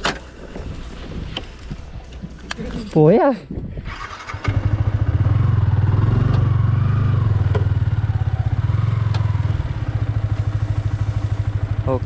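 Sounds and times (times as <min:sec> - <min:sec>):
motorcycle engine running: 0:03.8 - 0:12.0.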